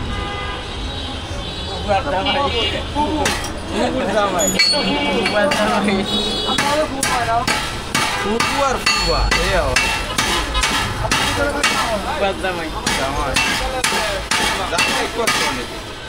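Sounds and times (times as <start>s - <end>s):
hammer on metal: 3.2s - 3.6s, 4.6s - 12.2s, 12.8s - 15.7s.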